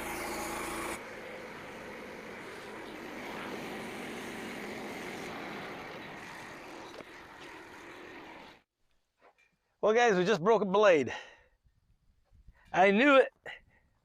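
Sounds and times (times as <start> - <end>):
saw blade rushing through log: 0.0 - 8.6
small gas engine droning: 0.0 - 8.6.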